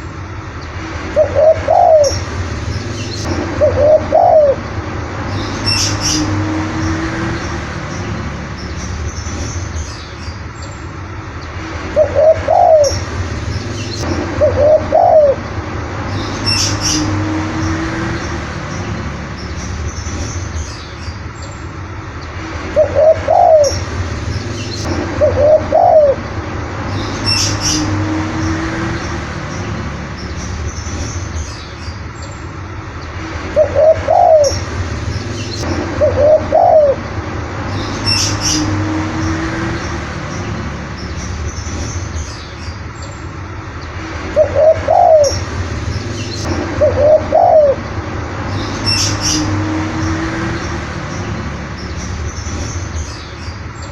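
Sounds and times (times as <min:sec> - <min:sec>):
dove cooing: 0:01.2 - 0:02.2, 0:03.6 - 0:04.6, 0:12.0 - 0:13.0, 0:14.4 - 0:15.4, 0:22.8 - 0:23.8, 0:25.2 - 0:26.2, 0:33.6 - 0:34.6, 0:36.0 - 0:37.0, 0:44.4 - 0:45.4, 0:46.8 - 0:47.8
high bird chirp: 0:01.2 - 0:04.6, 0:05.2 - 0:10.8, 0:11.9 - 0:21.6, 0:22.8 - 0:26.2, 0:26.8 - 0:32.4, 0:33.6 - 0:43.3, 0:44.4 - 0:53.9.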